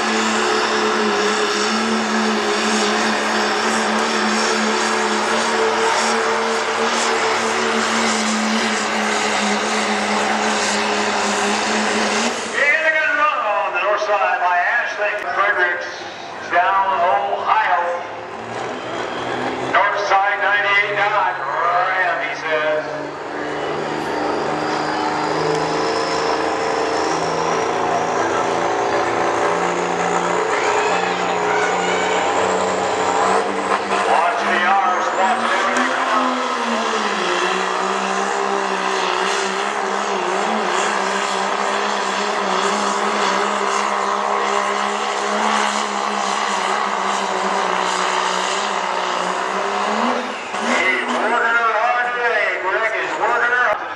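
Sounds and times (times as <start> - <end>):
engine droning steadily: 0.0 - 53.9.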